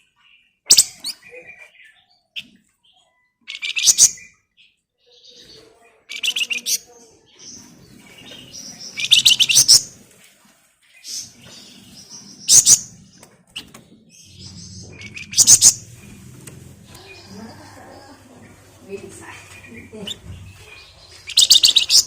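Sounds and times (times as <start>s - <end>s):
bird chattering notes: 14.2s - 16.2s, 16.8s - 22.0s.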